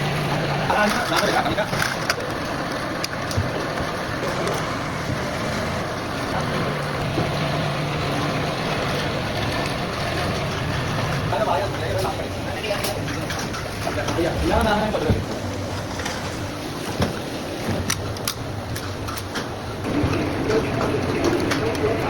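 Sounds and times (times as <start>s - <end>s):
motor hum: 0.0s - 22.0s.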